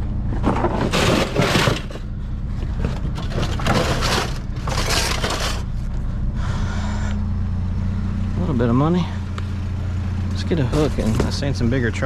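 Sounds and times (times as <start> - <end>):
vehicle engine idling: 0.0 - 12.0
aluminum scrap crunching and rattling: 0.3 - 5.9.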